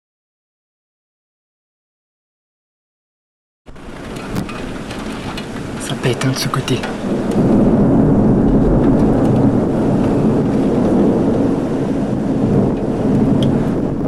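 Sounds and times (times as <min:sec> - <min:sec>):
thunder rumbling: 0:03.7 - 0:14.0.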